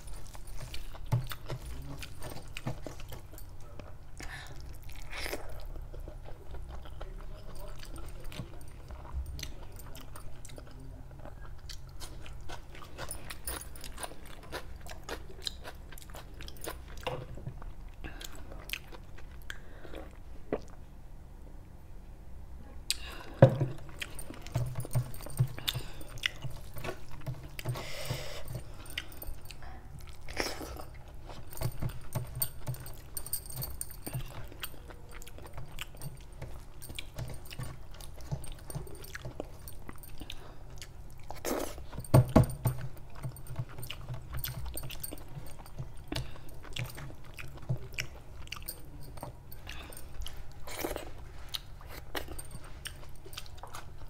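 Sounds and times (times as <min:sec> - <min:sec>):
person chewing food: 0:00.0 - 0:20.9, 0:22.9 - 0:54.0.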